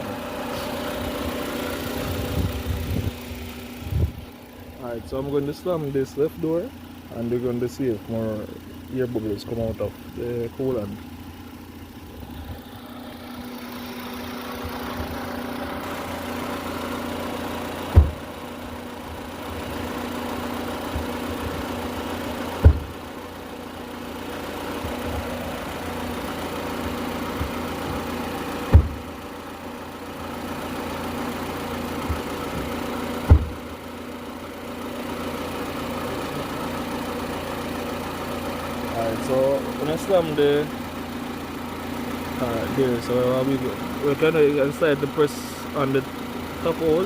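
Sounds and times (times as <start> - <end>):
car engine idling: 0.0 - 47.0
car door slamming: 17.8 - 18.5, 22.5 - 23.2, 27.3 - 28.0, 28.6 - 29.2, 32.0 - 33.7.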